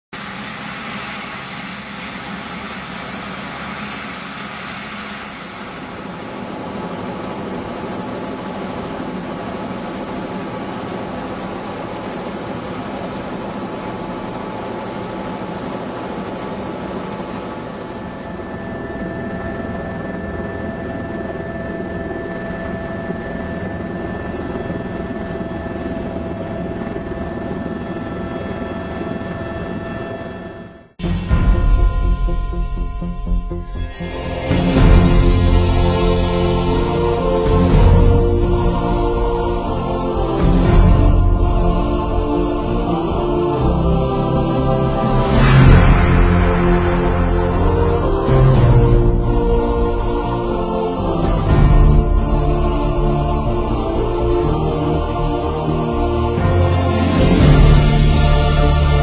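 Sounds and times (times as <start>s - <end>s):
steady tones: 0.2s - 26.1s, 31.0s - 59.0s
helicopter engine and rotor: 0.2s - 59.0s.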